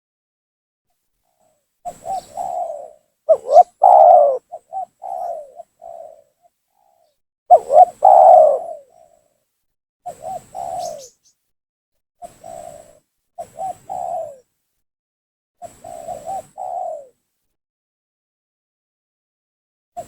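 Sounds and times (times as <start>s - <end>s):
dove cooing: 1.9s - 9.1s, 10.2s - 11.1s, 13.4s - 14.4s, 15.8s - 17.2s.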